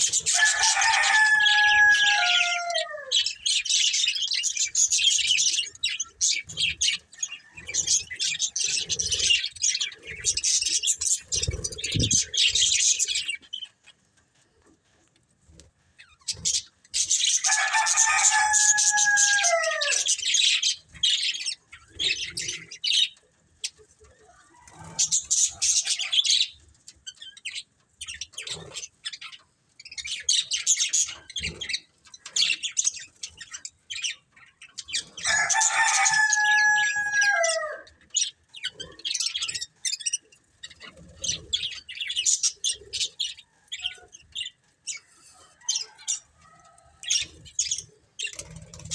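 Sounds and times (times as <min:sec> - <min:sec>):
budgerigars chirping and warbling: 0:00.0 - 0:14.1, 0:15.5 - 0:48.9
loud falling bird call: 0:17.5 - 0:20.1.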